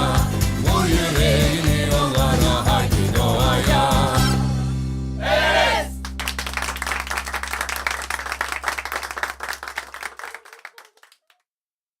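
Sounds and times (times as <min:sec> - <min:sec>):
crowd applause: 0:05.3 - 0:11.3.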